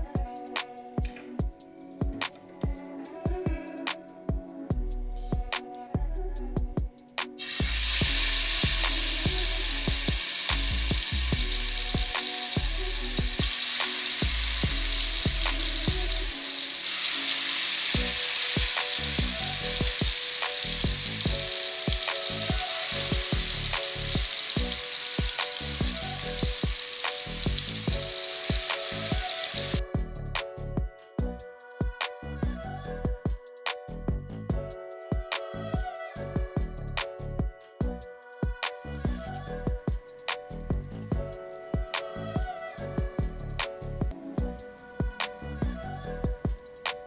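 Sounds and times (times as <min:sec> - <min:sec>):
background music with steady beat: 0:00.0 - 0:47.0
chicken sizzling in hot oil: 0:07.4 - 0:29.8.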